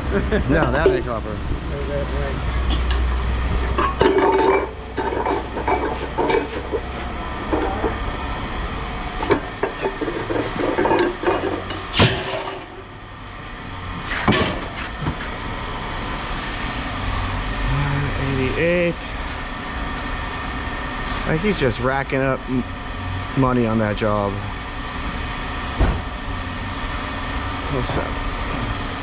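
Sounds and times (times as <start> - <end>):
low steady hum: 0.0 - 29.0
scrap metal clanking: 3.5 - 8.0, 9.2 - 12.8.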